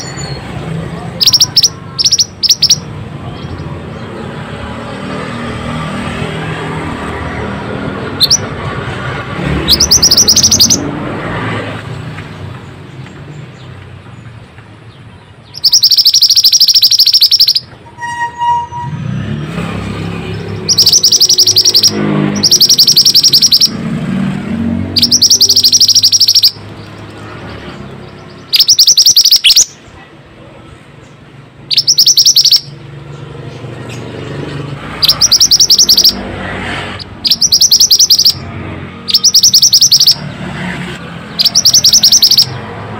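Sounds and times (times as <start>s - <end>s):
songbird rapid trills: 1.2s - 2.8s, 9.7s - 10.8s, 15.6s - 17.6s, 20.6s - 23.8s, 25.0s - 27.2s, 28.4s - 29.7s, 31.7s - 32.7s, 35.0s - 36.2s, 37.0s - 38.4s, 39.1s - 40.2s, 41.4s - 42.6s.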